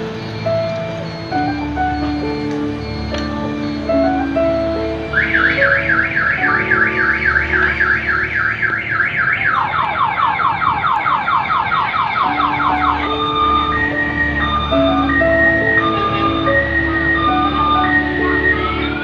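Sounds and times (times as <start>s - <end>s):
background music: 0.0s - 10.0s, 12.1s - 19.0s
electronic alarm siren: 0.0s - 19.0s.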